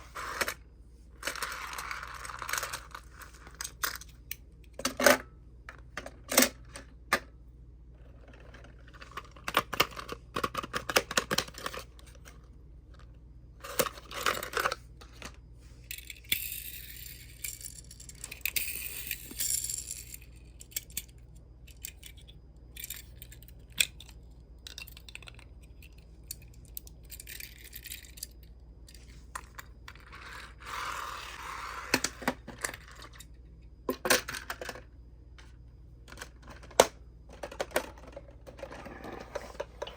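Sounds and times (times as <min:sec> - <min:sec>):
toy cars clicking and clinking: 0:01.2 - 0:04.4, 0:13.6 - 0:34.9.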